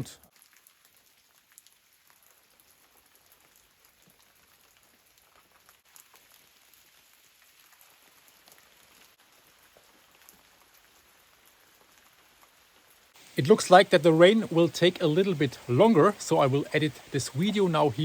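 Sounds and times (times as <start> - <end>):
light rain hiss: 0.0 - 18.0
small drip ticks: 0.2 - 6.4.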